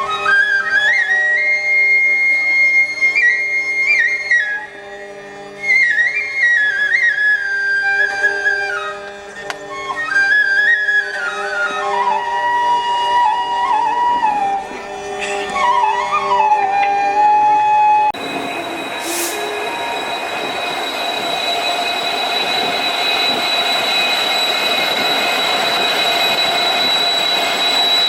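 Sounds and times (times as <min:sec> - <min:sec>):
solo flute melody: 0:00.0 - 0:28.0
steady drone: 0:18.1 - 0:28.0.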